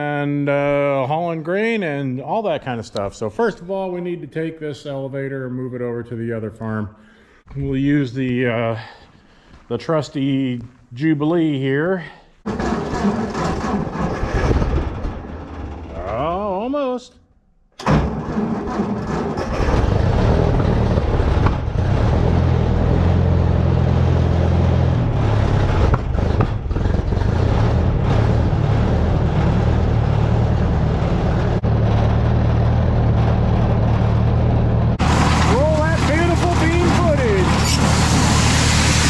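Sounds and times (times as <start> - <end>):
tractor engine running: 12.5 - 16.2, 17.8 - 39.0.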